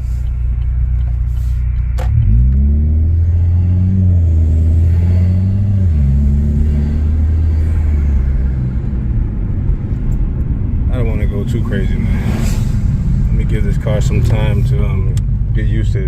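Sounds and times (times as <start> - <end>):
car exhaust accelerating hard: 0.0 - 10.2.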